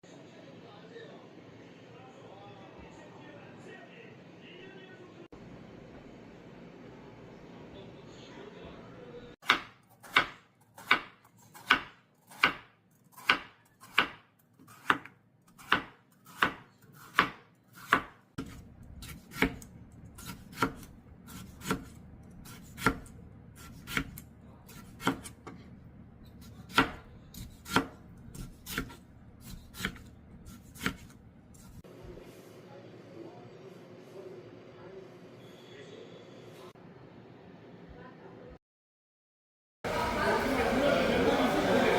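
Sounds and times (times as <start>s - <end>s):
knife chopping on cutting board: 9.4s - 25.6s, 26.3s - 31.8s.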